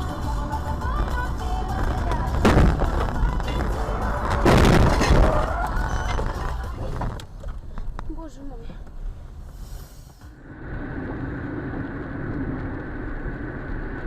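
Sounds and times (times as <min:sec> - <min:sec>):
music playing in a car: 0:00.0 - 0:07.3
vehicle collision crunch: 0:00.9 - 0:08.2
sharp bang: 0:02.3 - 0:05.5.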